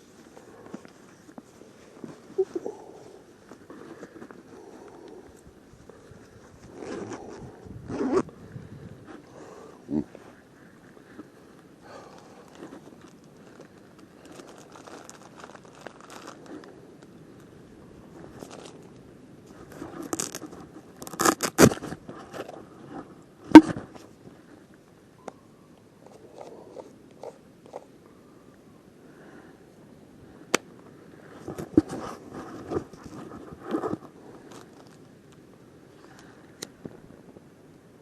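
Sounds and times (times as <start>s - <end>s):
plastic bag rustling and crinkling: 10.6s - 24.6s, 31.2s - 35.2s.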